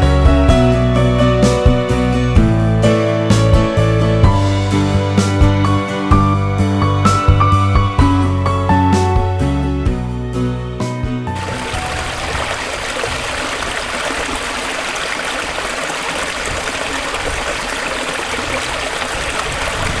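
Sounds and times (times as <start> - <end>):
water rushing: 11.3 - 20.0.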